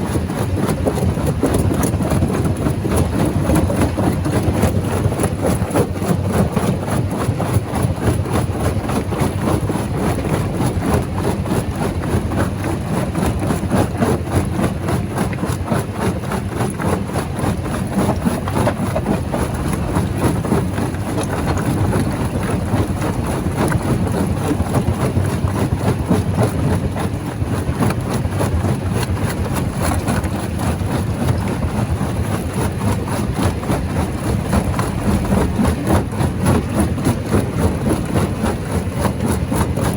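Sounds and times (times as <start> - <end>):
stone rattling and crackling: 18.3 - 23.0
rock crusher drone: 18.3 - 24.2, 33.6 - 38.6.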